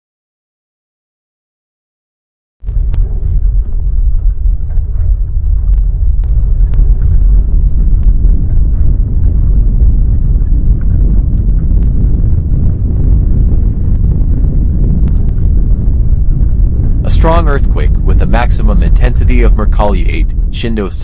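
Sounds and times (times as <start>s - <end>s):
loud low rumble: 2.6s - 21.0s.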